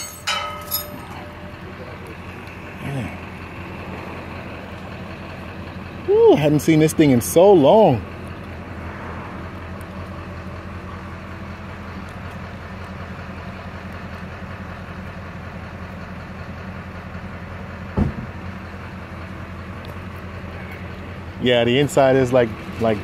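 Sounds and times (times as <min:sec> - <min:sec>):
vehicle engine idling: 0:00.0 - 0:23.0
short knock: 0:18.0 - 0:18.3.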